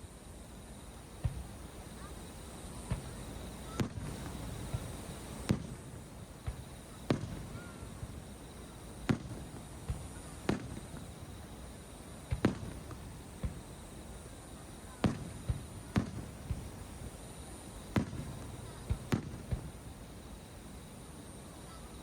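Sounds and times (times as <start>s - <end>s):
firework shells bursting: 3.0s - 11.3s, 12.3s - 13.9s, 15.0s - 17.1s, 17.9s - 19.7s.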